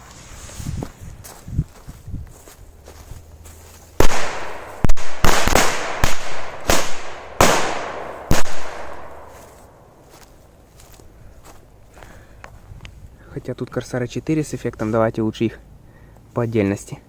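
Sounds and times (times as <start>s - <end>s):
firecrackers banging: 4.0s - 9.4s.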